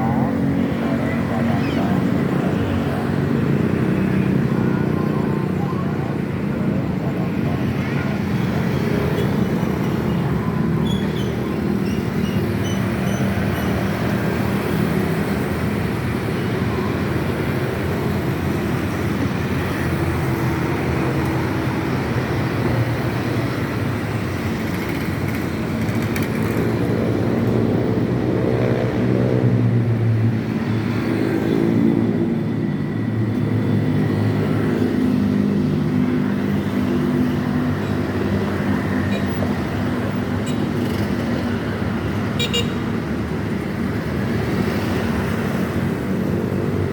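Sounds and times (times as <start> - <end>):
road traffic rushing: 0.0 - 46.9.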